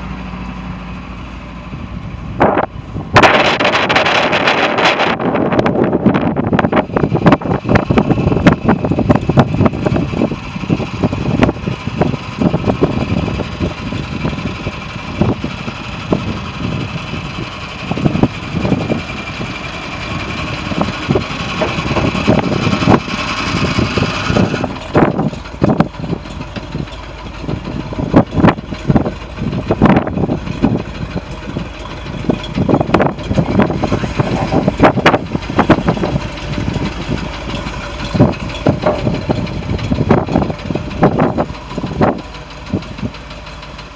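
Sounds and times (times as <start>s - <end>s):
truck engine rumbling: 0.0s - 43.9s.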